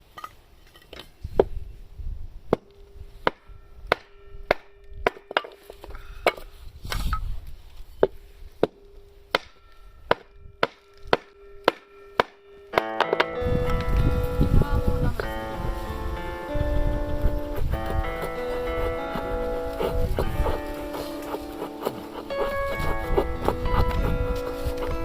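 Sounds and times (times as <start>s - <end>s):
blade ringing: 8.8s - 25.0s.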